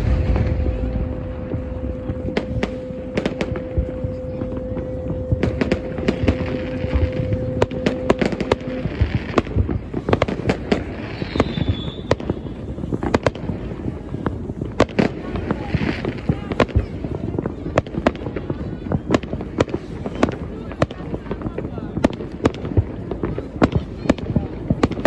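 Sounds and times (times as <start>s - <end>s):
steady low hum: 0.0s - 10.9s
fireworks bangs and crackles: 0.0s - 25.0s
falling whistle: 11.1s - 12.2s.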